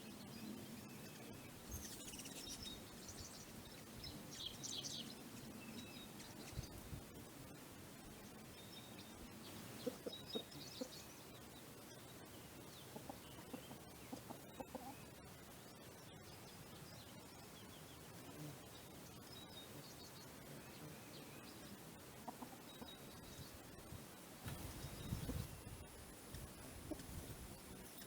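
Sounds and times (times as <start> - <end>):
soft low bird clucks: 9.8 - 10.9, 12.9 - 15.0, 22.2 - 23.0.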